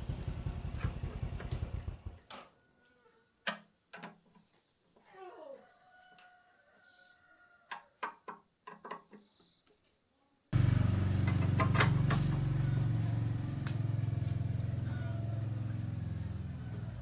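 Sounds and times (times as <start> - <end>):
small engine running: 0.0 - 2.3, 10.6 - 17.0.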